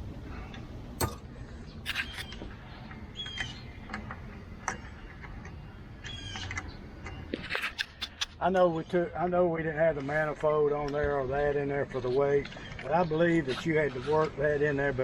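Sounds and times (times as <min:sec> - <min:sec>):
hand tools clinking on metal: 0:01.0 - 0:01.3.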